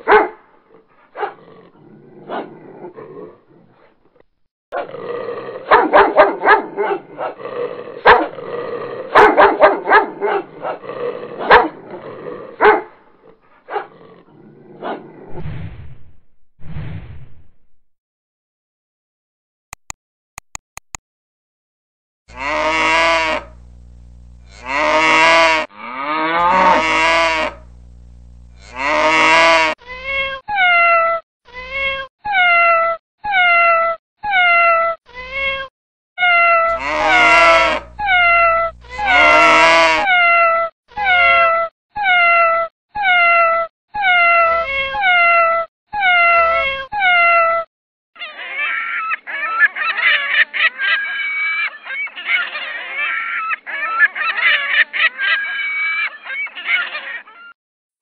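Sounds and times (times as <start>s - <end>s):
calf mooing: 22.3s - 23.6s, 24.4s - 27.7s, 28.5s - 29.8s, 36.7s - 40.1s
cat meowing: 30.1s - 47.6s
gulls calling: 36.7s - 39.6s.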